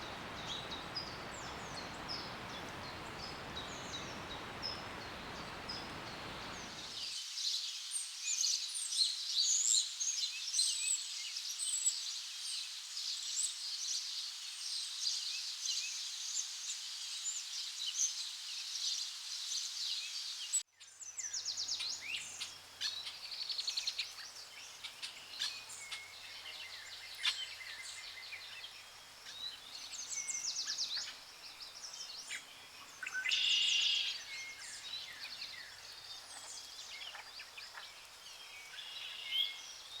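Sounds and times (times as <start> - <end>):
faint low hum: 0.0 - 6.8
birds chirping and singing: 0.0 - 6.9.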